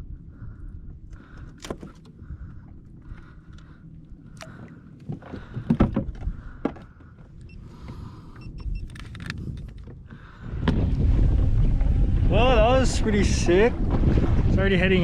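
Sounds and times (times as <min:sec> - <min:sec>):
fishing gear clicking and rattling: 0:08.4 - 0:10.2.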